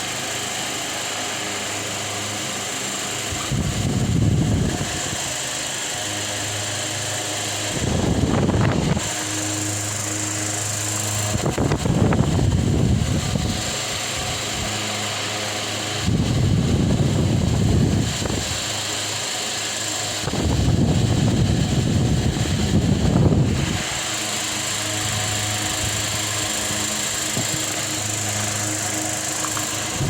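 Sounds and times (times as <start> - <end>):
fan motor hum: 0.0 - 30.0
air gusts hitting microphone: 3.4 - 5.2, 7.7 - 9.2, 16.0 - 18.7, 20.2 - 24.1.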